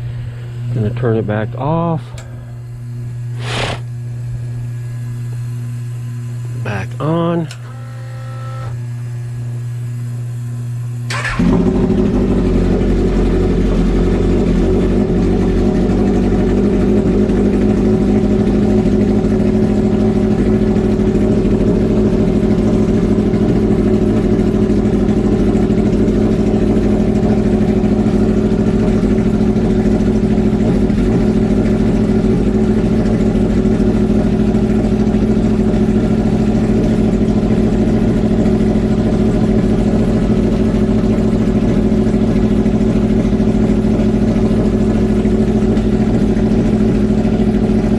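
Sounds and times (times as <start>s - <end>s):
steady hum: 0.0s - 8.8s
motorcycle engine starting and idling: 11.1s - 47.9s.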